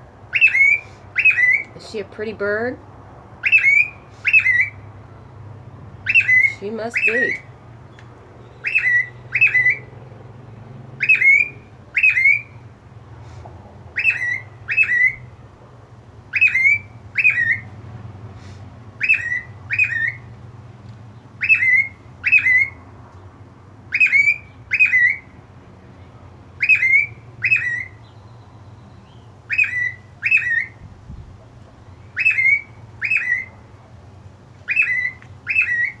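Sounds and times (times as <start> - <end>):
cockatiel chirping: 0.3 - 1.7, 3.4 - 4.8, 6.1 - 7.5, 8.6 - 9.8, 11.0 - 12.5, 14.0 - 15.2, 16.3 - 17.6, 19.0 - 20.2, 21.4 - 22.8, 23.9 - 25.3, 26.6 - 28.0, 29.5 - 30.8, 32.2 - 33.5, 34.7 - 36.0.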